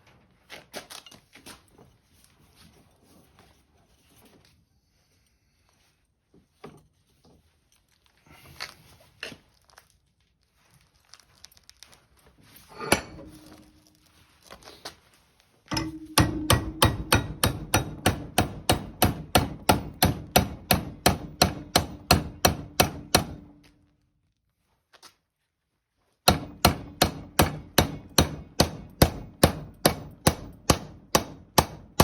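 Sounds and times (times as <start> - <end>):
hammer striking with ringing tone: 12.7 - 13.8, 15.7 - 23.4.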